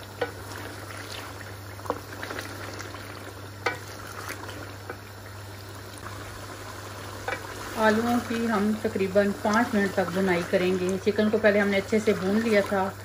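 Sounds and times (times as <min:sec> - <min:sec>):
curry sizzling in a pot: 0:00.0 - 0:13.0
wooden spoon stirring: 0:00.1 - 0:13.0
spoon knocking against pan: 0:03.6 - 0:03.8.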